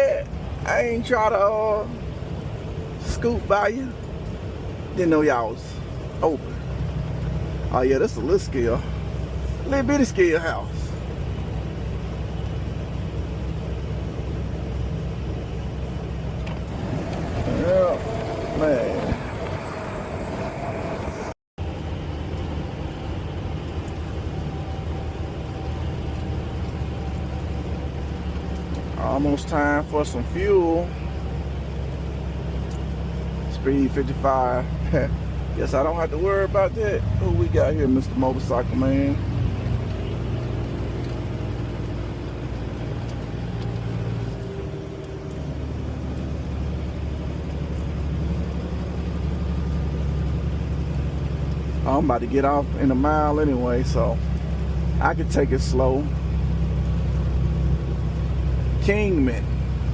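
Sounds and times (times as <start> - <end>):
road noise: 0.0 - 59.9
truck engine drone: 0.0 - 59.9.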